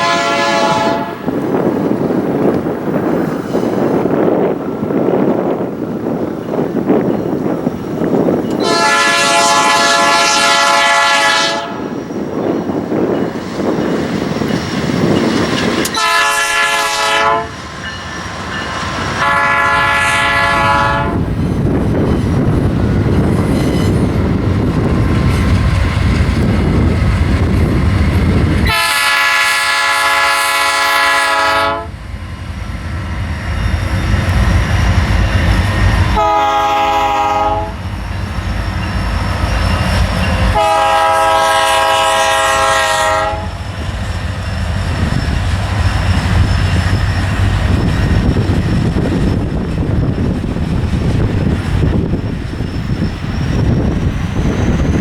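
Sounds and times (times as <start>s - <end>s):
locomotive air horn blasts: 0.0s - 1.3s, 8.6s - 12.0s, 15.9s - 17.6s, 18.7s - 21.2s, 28.6s - 31.9s, 36.2s - 37.9s, 40.5s - 43.6s
train rolling noise: 0.0s - 55.0s.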